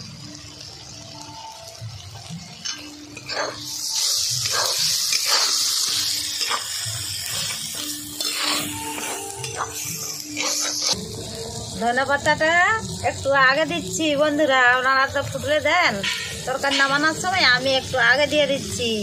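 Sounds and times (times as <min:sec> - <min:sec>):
curry sizzling in a pan: 0:00.0 - 0:19.0
metal spatula scraping a pan: 0:02.6 - 0:11.0, 0:15.9 - 0:17.4.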